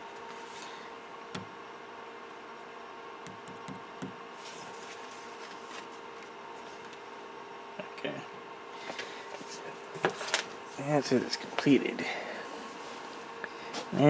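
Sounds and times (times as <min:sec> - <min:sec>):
printer fans humming: 0:00.0 - 0:04.5.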